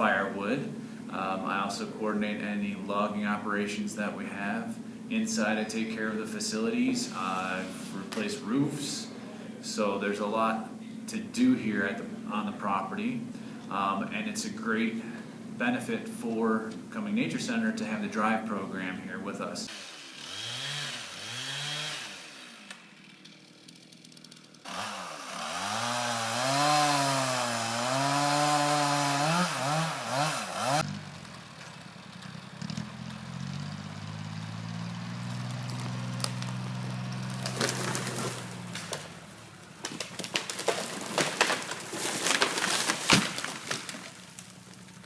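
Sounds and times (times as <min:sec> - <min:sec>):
chainsaw running: 0:19.7 - 0:45.0.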